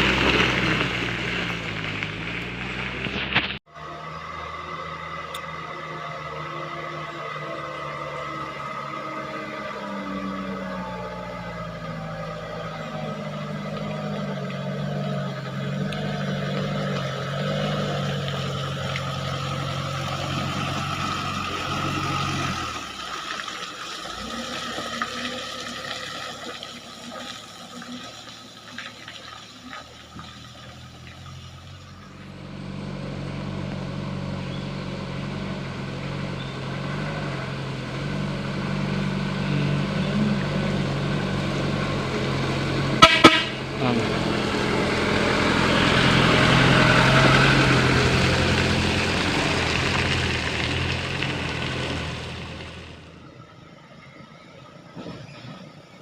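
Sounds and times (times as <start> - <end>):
diesel truck engine running: 0.0 - 56.0
truck horn toots: 42.8 - 48.2.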